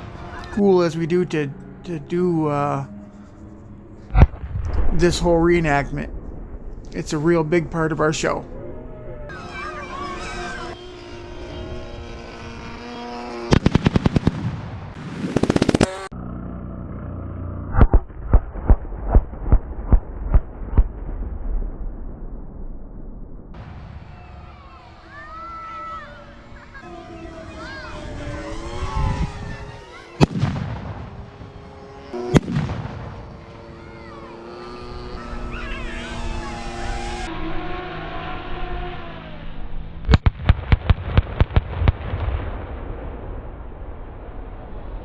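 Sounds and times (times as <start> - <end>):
steady drone: 0.0 - 13.7, 23.5 - 40.1
loud echoing explosion blasts: 4.1 - 8.2, 13.5 - 15.4, 30.2 - 31.6, 32.3 - 33.4, 40.2 - 45.0
heavy booms of charges: 4.1 - 8.6, 17.8 - 25.3, 30.2 - 33.9.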